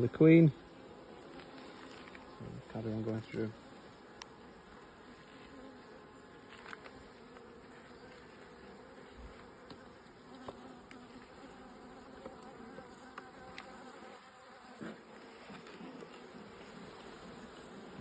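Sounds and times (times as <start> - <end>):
bees buzzing: 0.0 - 18.0
faint clicks: 4.2 - 4.4, 6.5 - 7.5.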